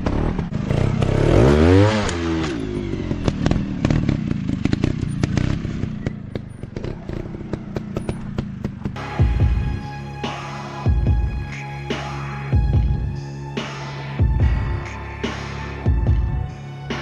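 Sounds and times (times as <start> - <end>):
dirt bike engine revving: 0.0 - 9.6.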